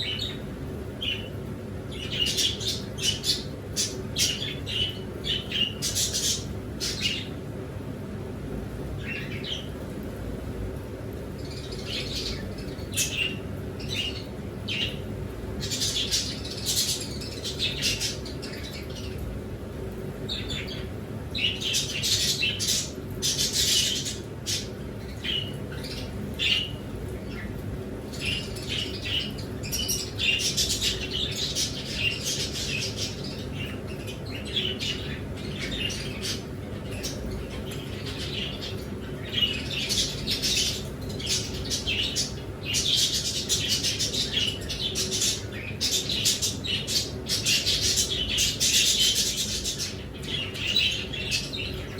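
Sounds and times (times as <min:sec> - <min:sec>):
cage birds chirping and squawking: 0:00.0 - 0:51.9
steady low hum: 0:00.0 - 0:51.9.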